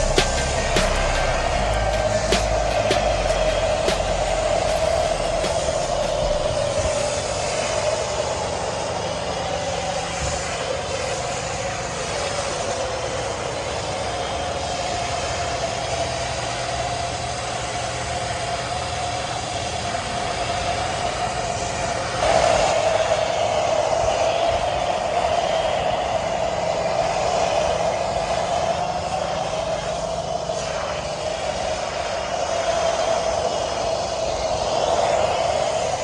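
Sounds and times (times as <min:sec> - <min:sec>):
cleaning machine motor whine: 0:00.0 - 0:36.0.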